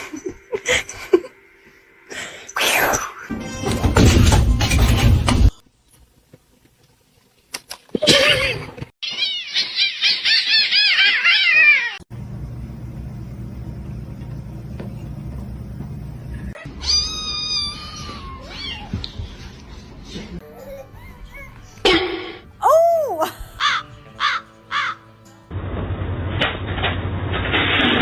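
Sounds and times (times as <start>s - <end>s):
cats meowing and yowling: 9.0s - 12.0s, 16.6s - 19.0s
low steady hum: 12.1s - 16.6s.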